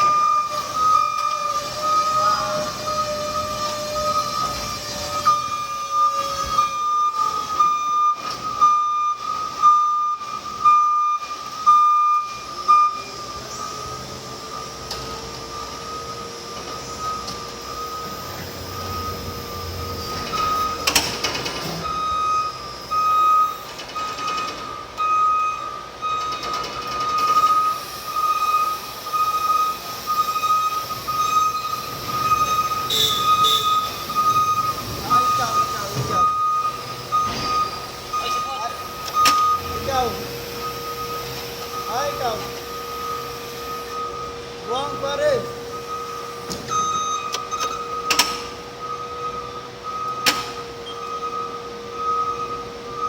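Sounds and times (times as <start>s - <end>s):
warning beeper: 0.0s - 53.0s
electric motor whine: 13.1s - 21.9s.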